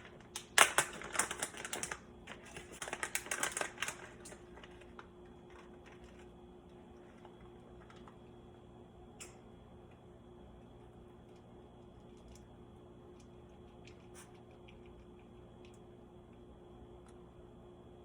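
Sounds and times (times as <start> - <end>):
bacon bits clicking and rattling: 0.0 - 6.1
faint steady hum: 0.0 - 18.0.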